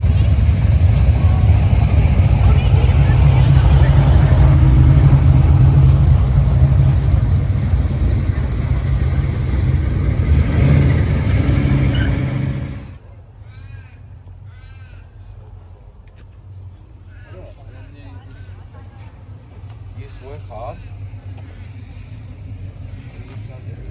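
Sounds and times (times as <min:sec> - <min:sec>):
car engine running loud: 0:00.0 - 0:13.0
bird cawing: 0:13.4 - 0:15.2, 0:17.1 - 0:18.8, 0:20.1 - 0:21.7.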